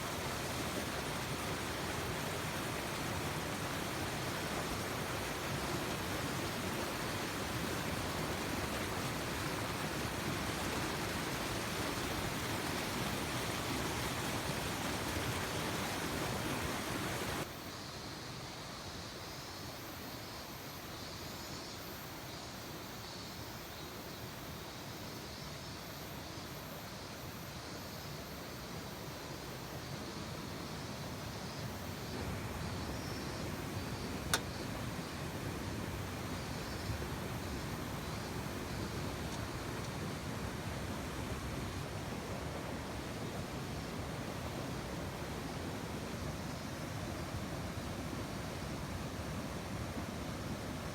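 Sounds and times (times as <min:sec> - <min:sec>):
stream rushing over rapids: 0:00.0 - 0:17.5, 0:30.2 - 0:50.9.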